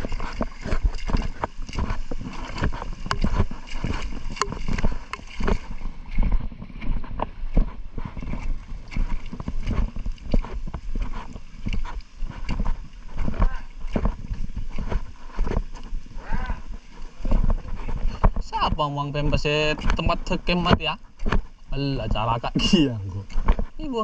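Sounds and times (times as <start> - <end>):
boat hull slapping on water: 0.0 - 24.0.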